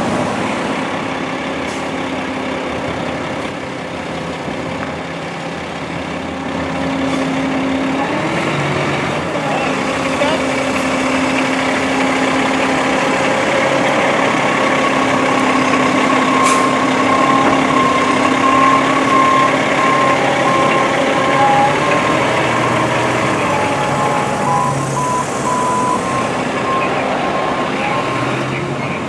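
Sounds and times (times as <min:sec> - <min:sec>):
diesel engine running: 0:00.0 - 0:29.0
reversing alarm beeping: 0:10.2 - 0:29.0.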